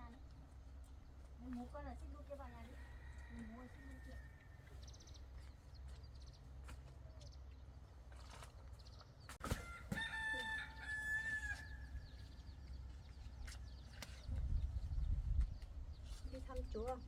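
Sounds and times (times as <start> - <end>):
rooster crowing: 9.6 - 11.9.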